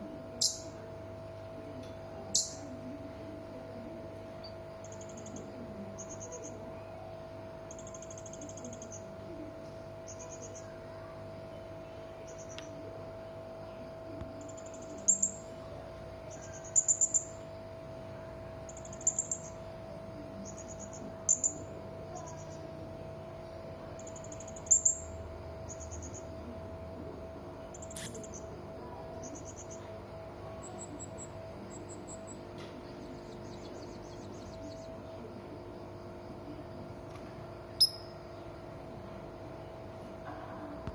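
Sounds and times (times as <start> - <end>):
parrot trilled chirps: 0.4 - 0.8, 2.3 - 2.7, 37.8 - 38.2.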